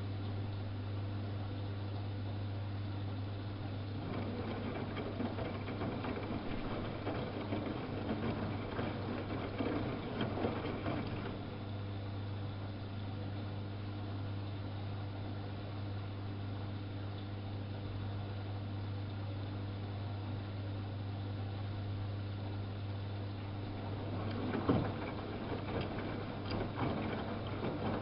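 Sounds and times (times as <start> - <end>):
washing machine low hum: 0.0 - 28.0
laundry and water sloshing: 3.8 - 11.8, 23.5 - 28.0.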